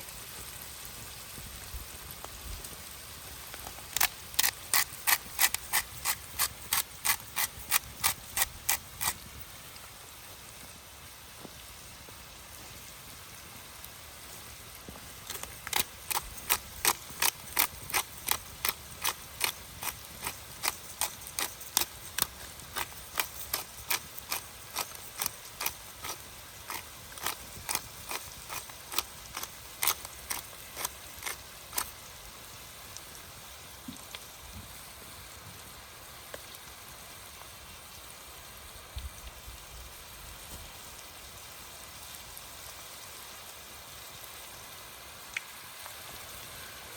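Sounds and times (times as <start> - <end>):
rain hissing in forest: 0.0 - 46.9
sharp ticks: 3.9 - 9.2, 15.3 - 31.9.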